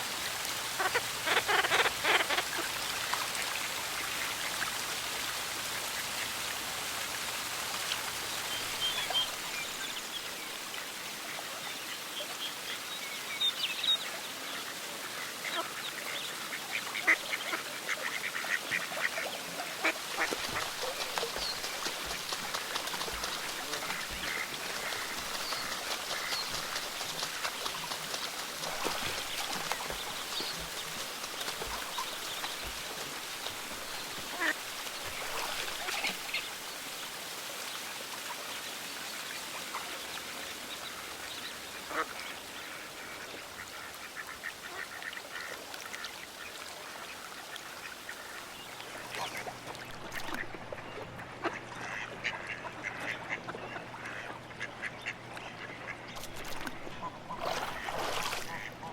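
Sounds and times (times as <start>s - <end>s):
ducks quacking: 0.7s - 2.7s, 16.9s - 36.2s, 48.1s - 58.9s.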